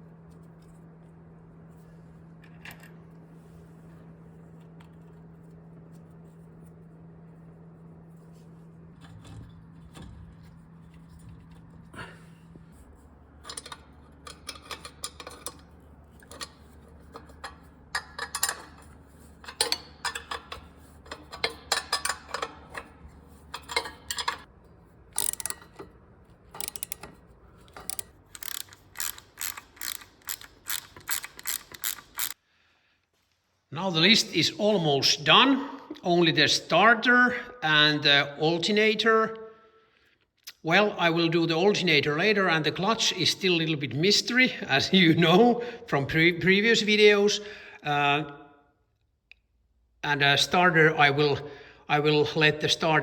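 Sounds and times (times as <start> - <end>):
steady low hum: 0.0 - 39.9
metal tools clinking: 23.5 - 24.5.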